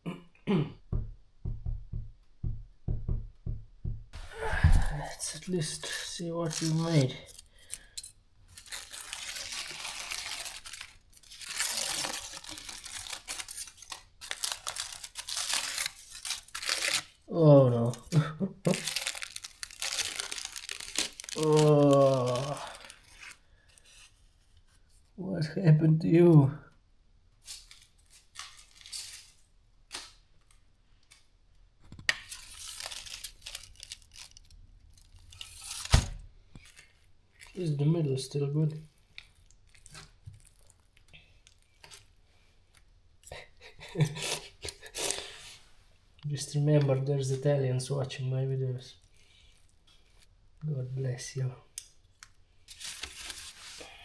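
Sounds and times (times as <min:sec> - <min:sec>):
sharp knock: 0:00.9 - 0:04.2
wrapping crinkling and tearing: 0:04.8 - 0:25.0, 0:27.4 - 0:31.4, 0:32.0 - 0:37.8, 0:38.7 - 0:42.9, 0:43.6 - 0:45.7, 0:48.9 - 0:50.4, 0:51.7 - 0:54.0.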